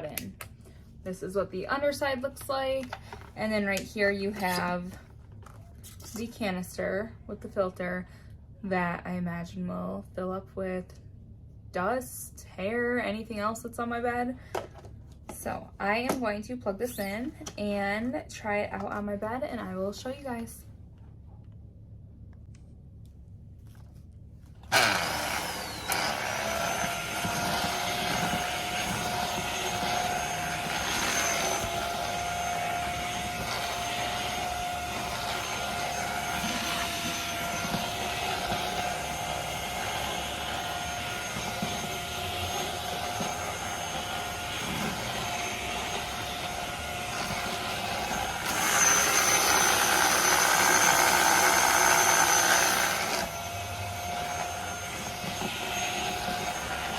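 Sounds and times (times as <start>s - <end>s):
handheld vacuum whining: 24.6s - 56.9s.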